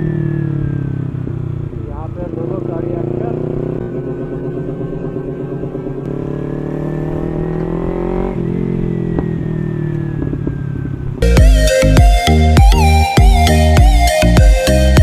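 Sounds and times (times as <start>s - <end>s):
motorcycle engine pulling away: 0.0s - 11.2s.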